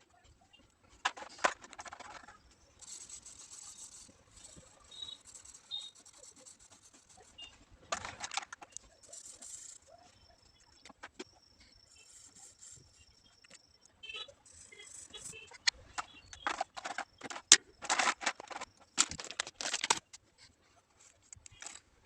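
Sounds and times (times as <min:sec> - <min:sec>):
pencil scratching on paper: 0:02.8 - 0:07.6, 0:08.9 - 0:10.4, 0:11.6 - 0:13.2, 0:14.4 - 0:15.6.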